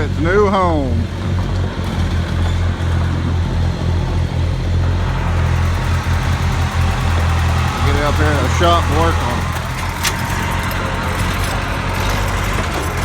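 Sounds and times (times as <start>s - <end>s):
heavy equipment engine humming: 0.0s - 13.0s.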